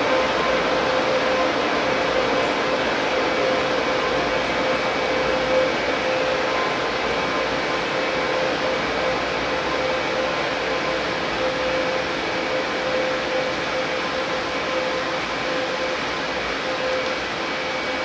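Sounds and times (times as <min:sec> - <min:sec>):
train hum and whir: 0:00.0 - 0:18.0.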